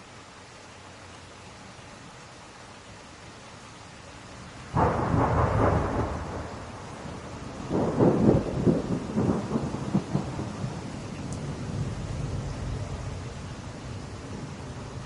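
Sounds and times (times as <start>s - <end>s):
steady rain: 0.0s - 15.0s
thunder rumbling: 4.7s - 15.0s.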